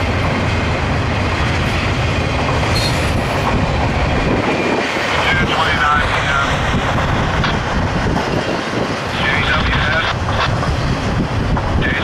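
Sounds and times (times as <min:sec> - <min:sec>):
loud rumble of wheels on rail: 0:00.0 - 0:12.0
high wheel squeal: 0:02.7 - 0:03.4.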